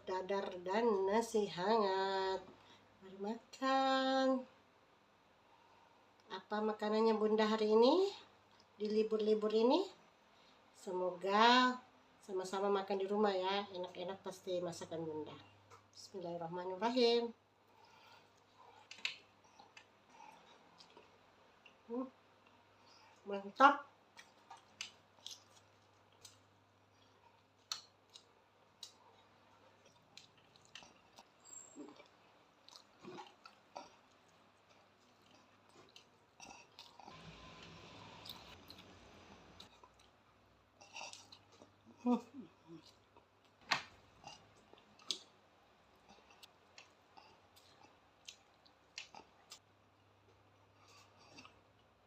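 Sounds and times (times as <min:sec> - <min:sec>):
person chewing food: 0:17.7 - 0:23.2, 0:24.0 - 0:52.0.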